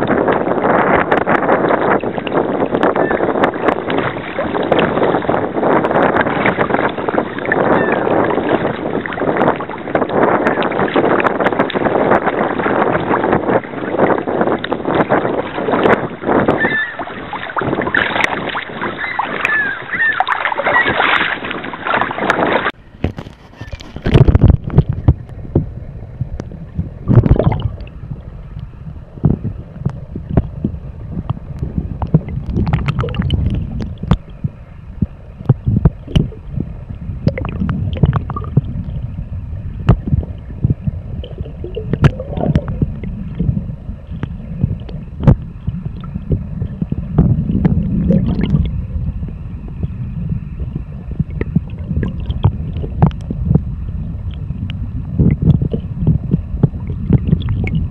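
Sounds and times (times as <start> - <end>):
water sloshing against hull: 0.0 - 57.9
paddle splashes: 0.1 - 28.0
low rumble: 22.7 - 57.9.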